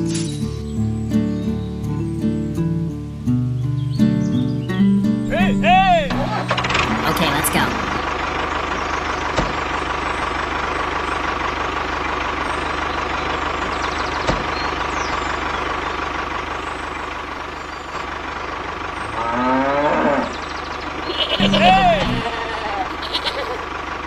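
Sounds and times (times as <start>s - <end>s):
toy tractor engine drone: 21.0s - 23.6s.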